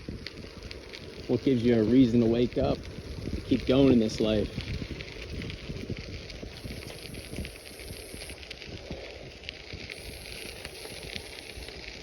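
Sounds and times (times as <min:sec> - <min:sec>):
bicycle tyres rolling on gravel: 0:00.0 - 0:12.0.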